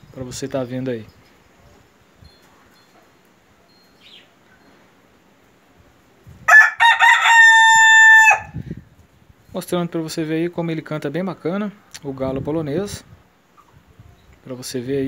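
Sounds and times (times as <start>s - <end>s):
rooster crowing: 6.5s - 8.6s.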